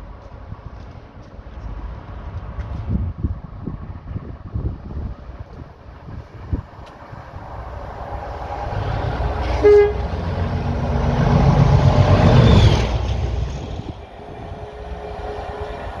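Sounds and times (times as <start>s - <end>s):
diesel locomotive engine rumble: 0.0s - 16.0s
short horn toot: 9.4s - 10.2s.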